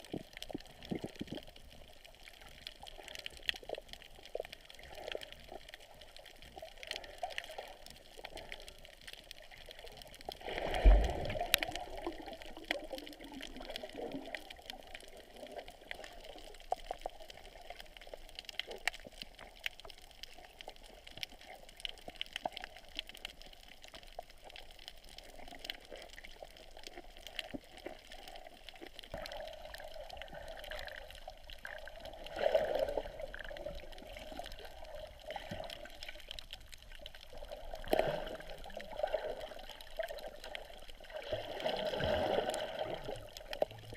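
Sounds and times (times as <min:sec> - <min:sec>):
muffled underwater water sound: 0:00.0 - 0:43.9.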